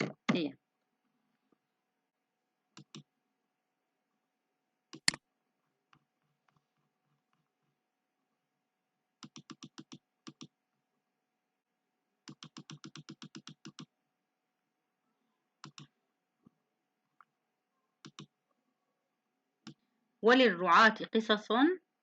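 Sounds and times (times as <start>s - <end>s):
computer keyboard typing: 2.8s - 3.1s, 4.9s - 5.2s, 9.2s - 10.5s, 12.3s - 13.9s, 15.6s - 15.9s, 18.0s - 18.3s.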